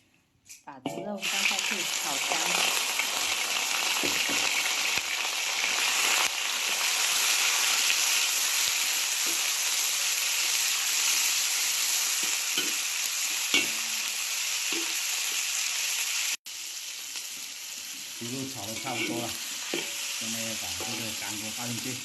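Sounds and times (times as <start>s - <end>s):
pork sizzling in pan: 0.8s - 22.0s.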